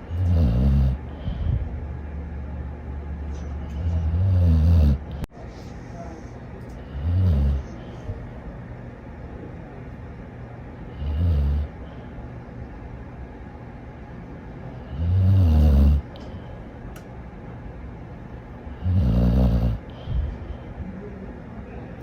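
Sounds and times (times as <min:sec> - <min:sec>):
dog snoring: 0:00.0 - 0:01.6, 0:03.6 - 0:05.3, 0:06.8 - 0:07.9, 0:10.9 - 0:11.8, 0:14.8 - 0:16.2, 0:18.7 - 0:20.3.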